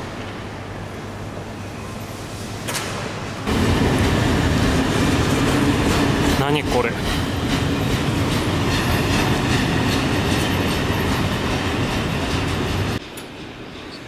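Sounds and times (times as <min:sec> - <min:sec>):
freight train rumbling past: 0:03.2 - 0:14.0.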